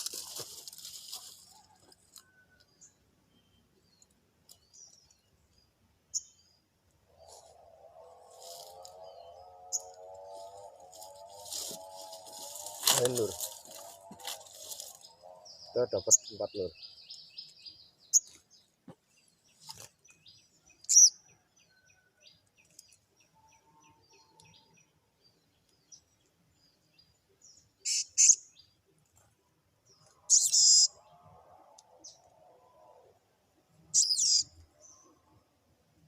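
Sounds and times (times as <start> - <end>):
small birds chirping: 0.0 - 36.0
faint ticking bird calls: 20.0 - 28.7.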